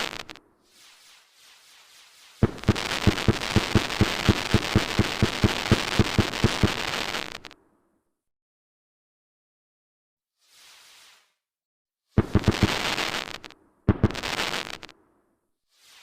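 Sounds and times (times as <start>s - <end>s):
fireworks crackling and popping: 0.0s - 7.6s, 10.4s - 11.4s, 12.2s - 15.0s, 15.7s - 16.0s.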